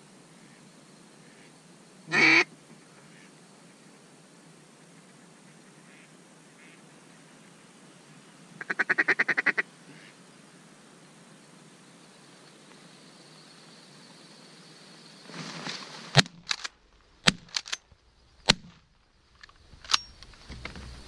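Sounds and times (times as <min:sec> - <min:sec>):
shotgun shots: 0:16.2 - 0:17.8
small mechanical clicks: 0:17.3 - 0:17.8.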